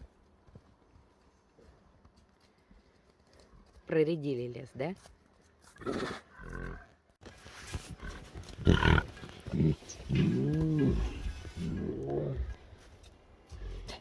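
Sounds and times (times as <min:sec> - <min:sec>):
tigers growling: 0:07.9 - 0:12.8
tiger moaning call: 0:08.6 - 0:12.6.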